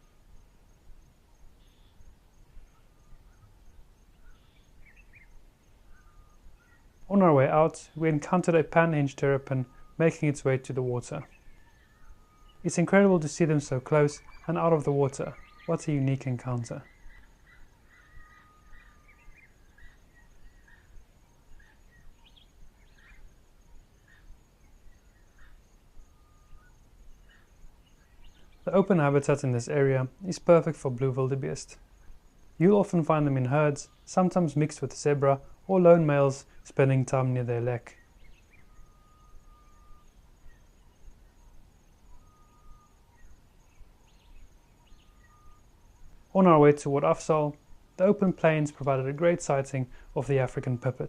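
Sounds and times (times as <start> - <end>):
faint chirps: 0.0 - 51.0
high insect buzz: 8.8 - 30.6, 38.0 - 46.4
bird whistling: 16.8 - 20.9, 37.9 - 40.6.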